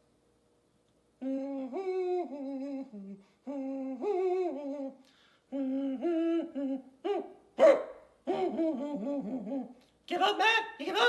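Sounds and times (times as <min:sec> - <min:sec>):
person humming a tune: 0:01.2 - 0:07.3, 0:08.2 - 0:09.9.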